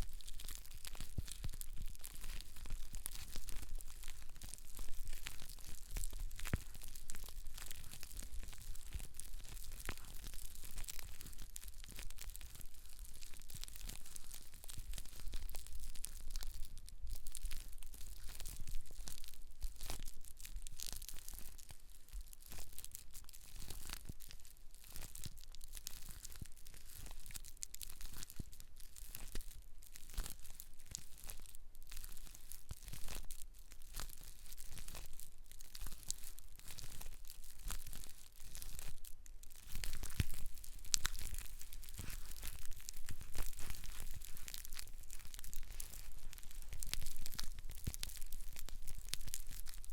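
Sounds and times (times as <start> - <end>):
hair crackling and rustling: 39.8 - 46.8.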